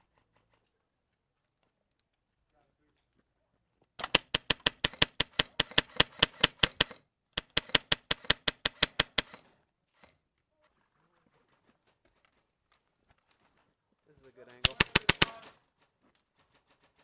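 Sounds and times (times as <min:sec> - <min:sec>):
airsoft gun rapid firing: 0:04.0 - 0:09.4, 0:14.6 - 0:15.6.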